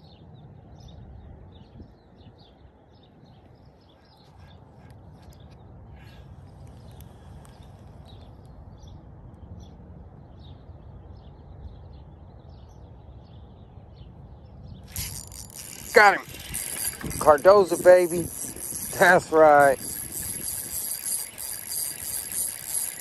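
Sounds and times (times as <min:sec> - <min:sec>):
small birds chirping: 0:12.4 - 0:23.0.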